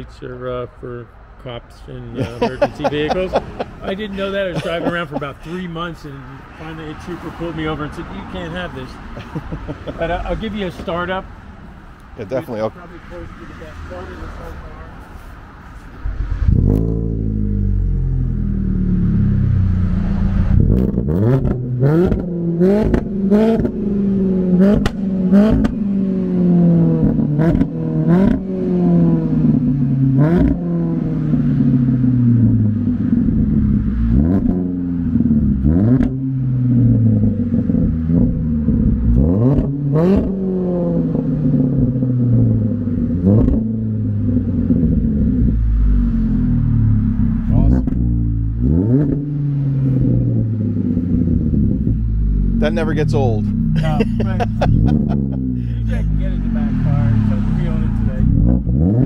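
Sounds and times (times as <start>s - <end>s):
car engine revving: 2.2s - 59.0s
exhaust cracks: 15.9s - 59.0s.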